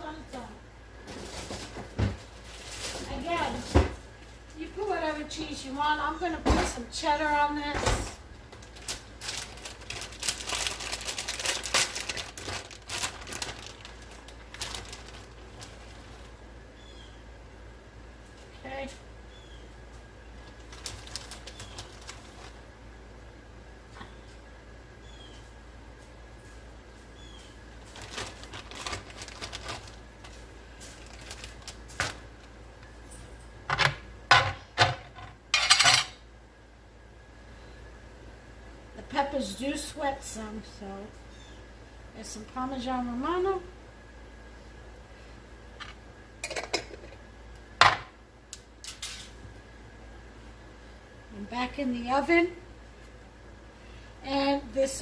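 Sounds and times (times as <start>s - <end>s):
plastic packaging crinkling: 8.4s - 16.4s, 20.3s - 22.8s, 27.6s - 32.9s.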